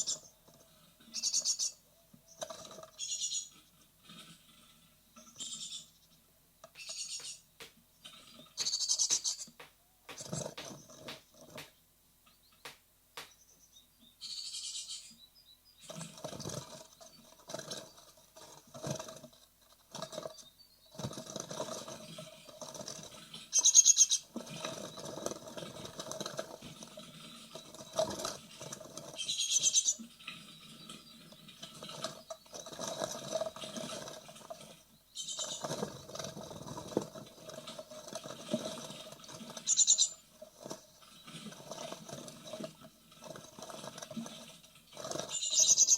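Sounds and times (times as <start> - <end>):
high-pitched begging calls: 6.8 - 7.5, 8.6 - 10.9.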